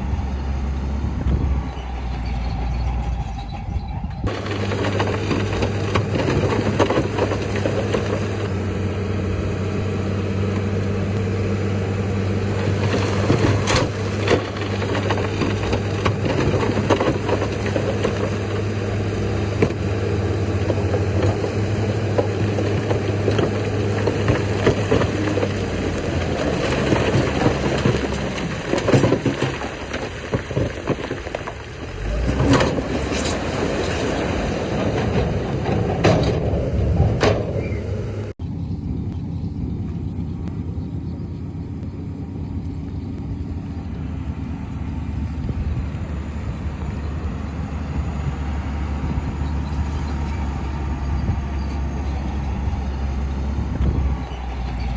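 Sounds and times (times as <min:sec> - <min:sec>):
heavy machinery diesel engines: 0:00.0 - 0:54.9
loud metal knocks and clanks: 0:32.2 - 0:38.3.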